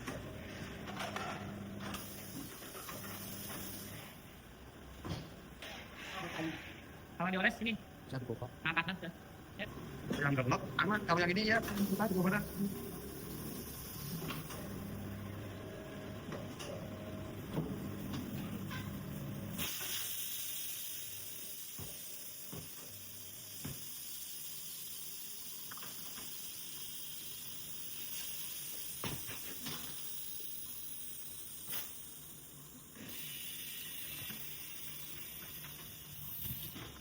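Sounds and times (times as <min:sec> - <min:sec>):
compressed air hissing: 0:19.5 - 0:29.0, 0:33.0 - 0:37.0.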